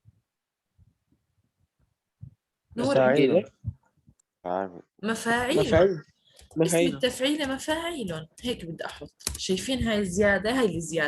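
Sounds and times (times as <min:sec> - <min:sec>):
faint low thuds: 0:03.5 - 0:03.9, 0:09.6 - 0:11.0.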